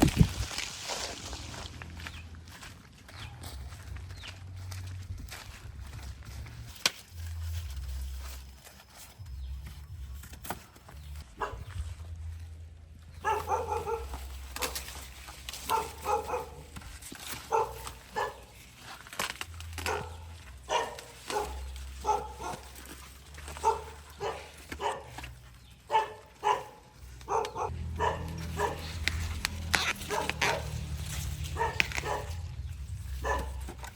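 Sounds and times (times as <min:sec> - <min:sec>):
dog barking: 0:11.4 - 0:11.7, 0:13.2 - 0:14.9, 0:15.6 - 0:18.6, 0:19.8 - 0:25.3, 0:25.9 - 0:29.0, 0:29.7 - 0:30.9, 0:31.5 - 0:32.5, 0:33.1 - 0:33.8.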